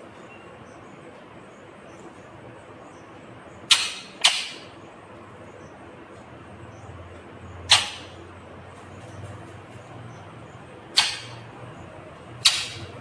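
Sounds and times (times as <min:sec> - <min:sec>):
parakeet shrieking: 0:07.7 - 0:08.2, 0:11.0 - 0:11.5, 0:12.4 - 0:13.0.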